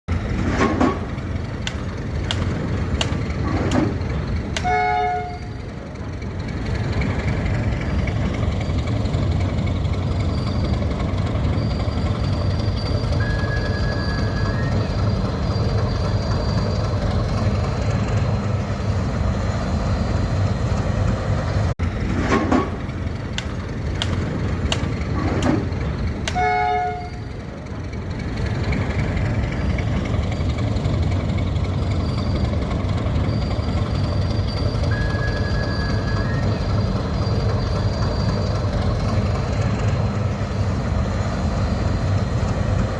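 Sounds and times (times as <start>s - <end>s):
goods train rumbling past: 0.1s - 42.9s
wheel clicks over rail joints: 0.4s - 4.7s, 22.1s - 26.5s
train horn blast: 4.6s - 5.6s, 26.2s - 27.4s.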